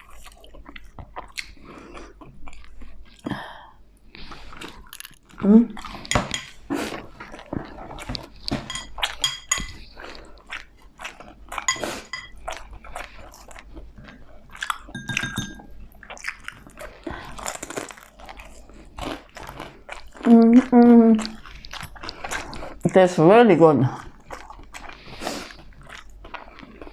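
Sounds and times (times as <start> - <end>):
crunching and chewing food: 0.0 - 23.2, 23.8 - 26.9.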